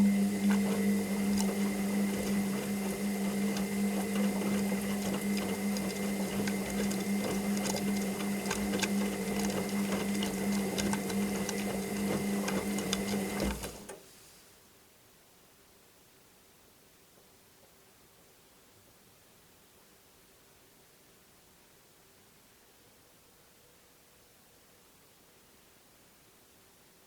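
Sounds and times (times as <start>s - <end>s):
washing machine running: 0.0s - 13.9s.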